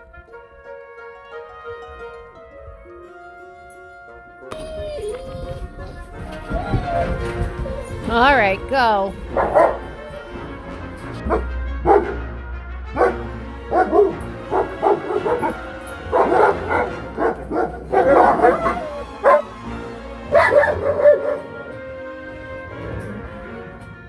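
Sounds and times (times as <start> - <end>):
background music: 0.0 - 24.0
dog barking and yipping: 9.1 - 10.2, 11.2 - 12.2, 13.0 - 21.8.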